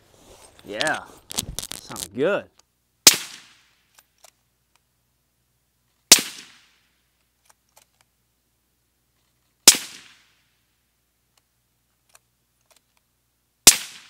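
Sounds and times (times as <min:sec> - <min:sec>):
suppressed rifle shots: 0:03.0 - 0:03.6, 0:06.1 - 0:06.6, 0:09.6 - 0:10.2, 0:13.6 - 0:14.0.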